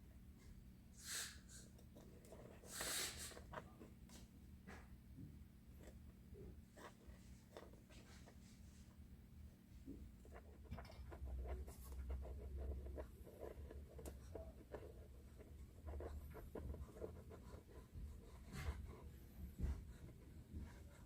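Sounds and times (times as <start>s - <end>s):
scratching and rubbing: 1.8s - 4.2s, 9.9s - 17.7s.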